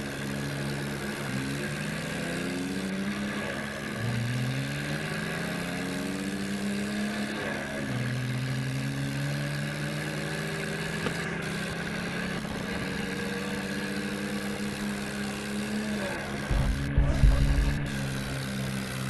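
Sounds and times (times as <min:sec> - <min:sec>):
tractor diesel engine running: 0:00.0 - 0:19.0
loud low rumbling: 0:16.4 - 0:18.8.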